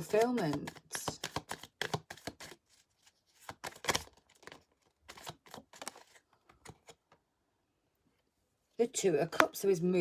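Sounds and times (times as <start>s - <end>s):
cards rustling: 0.0s - 7.1s
cards snapping and sliding: 0.7s - 2.6s, 3.4s - 7.0s.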